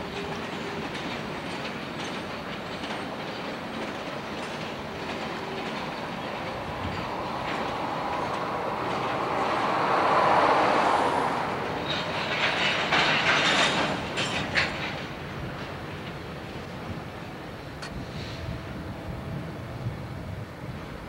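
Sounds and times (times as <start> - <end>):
diesel locomotive rumble: 0.0 - 21.0
metallic clanks and rattles: 11.7 - 15.8.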